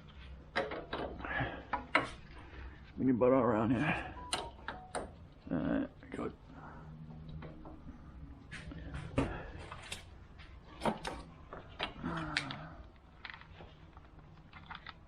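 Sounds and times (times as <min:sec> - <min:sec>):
hand tools clicking and knocking: 0:00.5 - 0:02.2
low mumble: 0:12.0 - 0:12.9.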